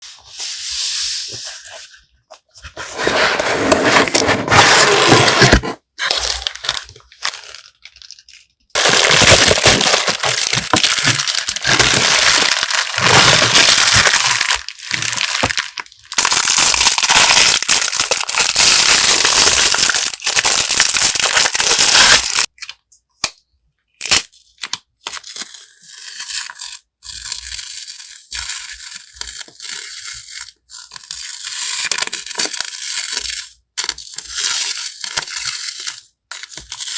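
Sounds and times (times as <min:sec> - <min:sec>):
packaging crinkling and rustling: 0:02.8 - 0:22.7.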